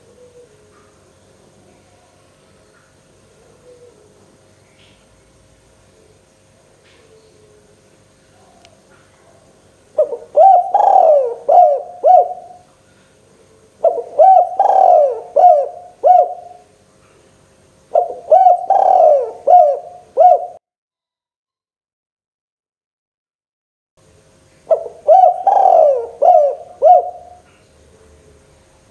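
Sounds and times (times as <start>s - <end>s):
dove cooing: 0.0s - 0.9s, 3.2s - 4.4s, 6.9s - 12.7s, 13.4s - 16.7s, 17.9s - 20.6s, 24.7s - 28.5s.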